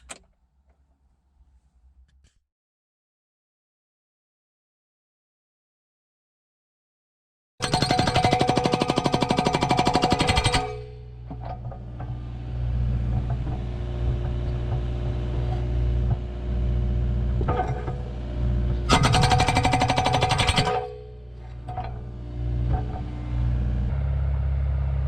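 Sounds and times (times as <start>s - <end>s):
hydraulic breaker hammering concrete: 7.6s - 16.4s, 17.3s - 23.2s
diesel engine running: 21.2s - 25.0s.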